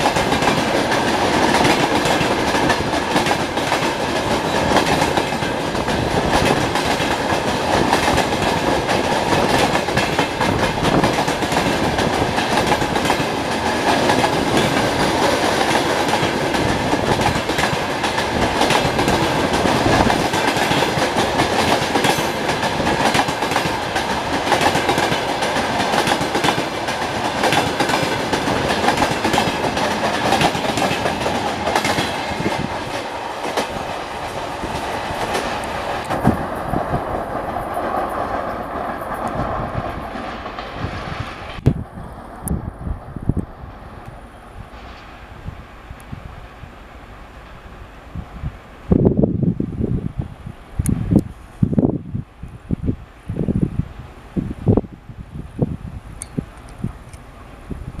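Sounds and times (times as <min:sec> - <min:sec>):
train wheels clattering over rails: 0:00.0 - 0:41.6.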